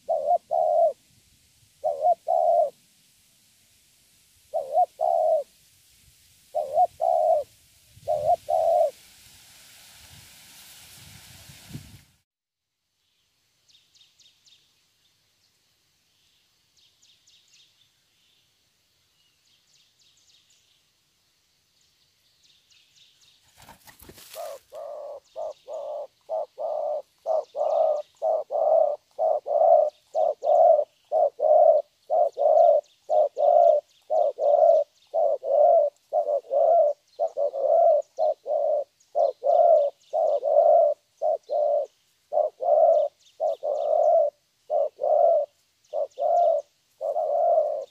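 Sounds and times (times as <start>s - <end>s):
dove cooing: 0.0s - 1.0s, 1.8s - 2.8s, 4.5s - 5.5s, 6.5s - 9.0s, 24.0s - 47.9s
faint high bird chirping: 21.8s - 47.9s.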